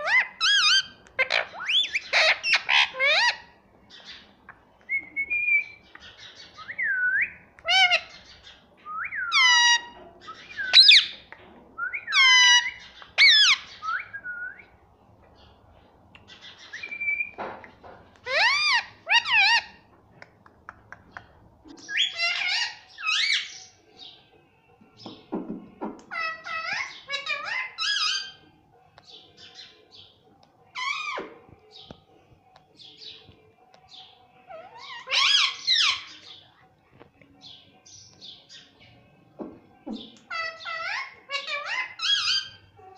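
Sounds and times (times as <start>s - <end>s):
parakeet squawks: 0.0s - 3.5s, 7.6s - 8.1s, 9.3s - 10.0s, 12.1s - 13.8s, 34.5s - 36.1s
parakeet whistled calls: 9.0s - 11.2s.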